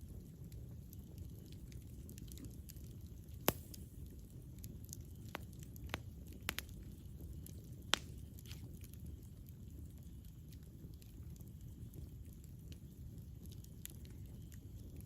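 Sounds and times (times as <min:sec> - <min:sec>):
low rumble of fire: 0:00.0 - 0:15.0
burning wood popping: 0:00.4 - 0:15.0.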